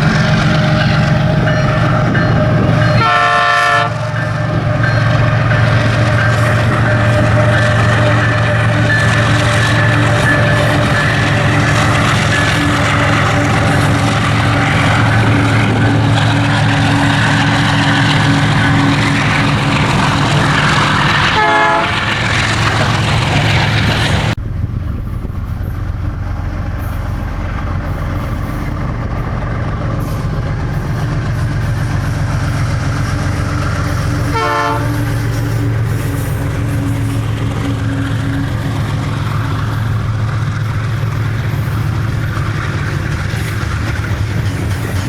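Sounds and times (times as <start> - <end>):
locomotive horn: 0.0 - 22.8, 33.6 - 39.4
locomotive engine drone: 0.0 - 45.0.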